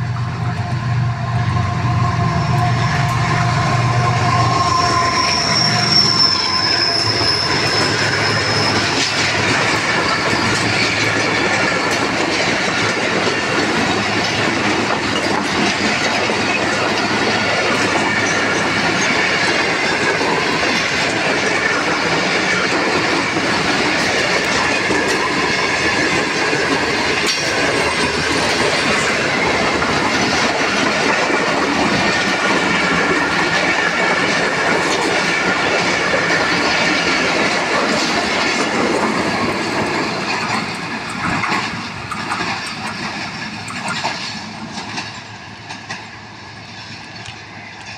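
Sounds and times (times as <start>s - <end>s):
train wheels rumbling on rails: 0.0s - 47.9s
high ringing tone: 0.5s - 9.1s
wheels clacking over rail joints: 2.2s - 47.9s.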